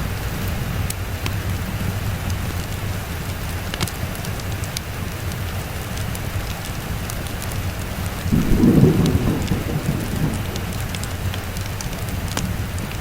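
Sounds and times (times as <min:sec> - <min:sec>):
thunder rumbling: 0:00.0 - 0:03.0, 0:06.9 - 0:13.0
steady rain: 0:00.0 - 0:13.0.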